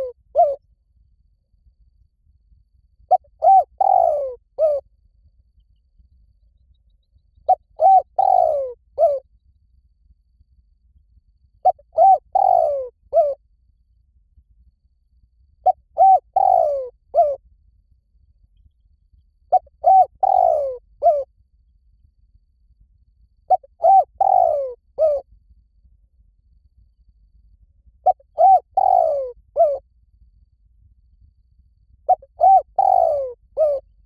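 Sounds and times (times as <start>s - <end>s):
dove cooing: 0.0s - 0.6s, 3.1s - 4.8s, 7.5s - 9.2s, 11.6s - 13.4s, 15.6s - 17.4s, 19.5s - 21.3s, 23.5s - 25.2s, 28.0s - 29.8s, 32.1s - 33.8s.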